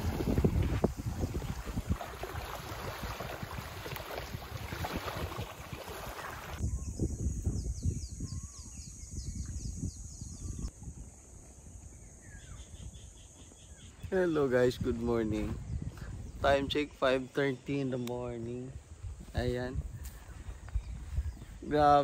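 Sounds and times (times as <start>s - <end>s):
surf rushing on beach: 0.0s - 0.9s
wind buffeting microphone: 0.0s - 17.3s, 18.1s - 22.0s
low wind rumble: 0.0s - 17.7s, 18.7s - 21.7s
bird calls: 5.8s - 10.7s, 11.8s - 14.4s.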